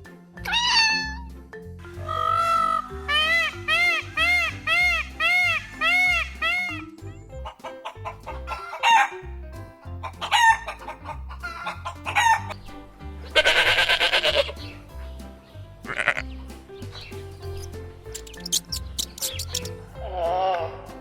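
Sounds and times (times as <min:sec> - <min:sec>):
background music with bass line: 0:00.0 - 0:21.0
donkey braying: 0:00.4 - 0:12.6, 0:13.2 - 0:15.2, 0:15.8 - 0:16.4.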